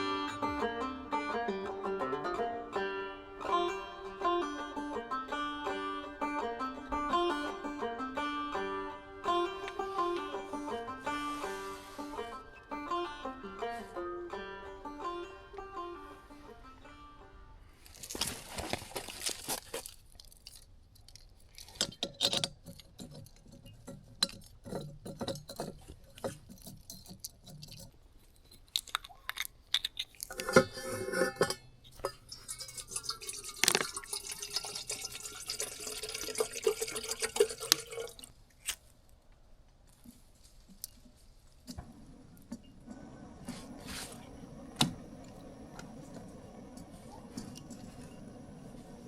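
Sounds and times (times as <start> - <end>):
glass and cookware clinking: 30.4 - 38.1
water running: 32.0 - 38.3.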